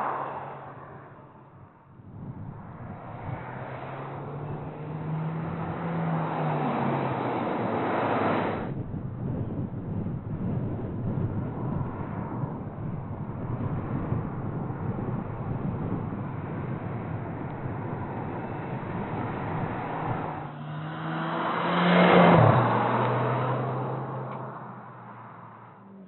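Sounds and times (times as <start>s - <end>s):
car engine driving past: 0.0s - 1.9s, 2.7s - 8.7s, 17.1s - 26.0s.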